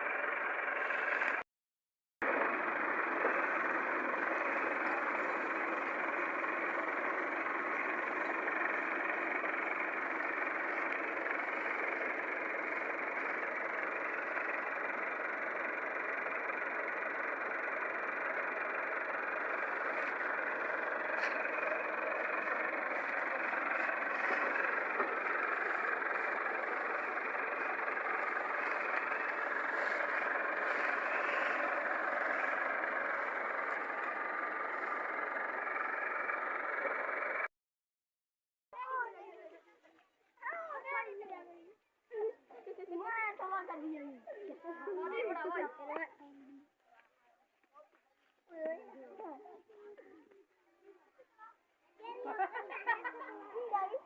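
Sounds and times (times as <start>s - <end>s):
tractor engine running: 0.0s - 1.4s, 2.2s - 37.5s.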